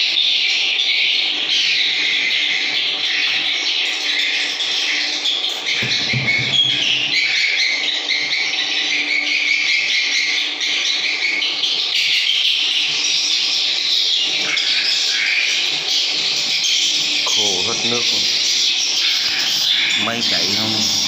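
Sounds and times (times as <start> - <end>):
swiftlets twittering: 13.4 - 21.0.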